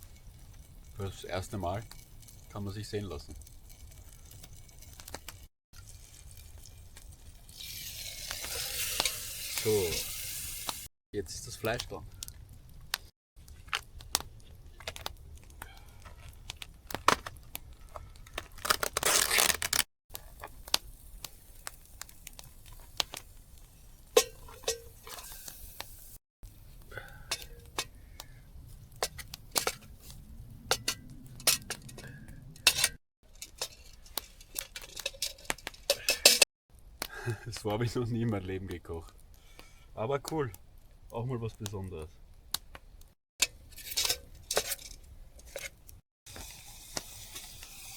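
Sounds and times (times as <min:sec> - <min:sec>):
packaging crinkling: 0:18.2 - 0:19.9
packaging tearing: 0:18.4 - 0:19.9.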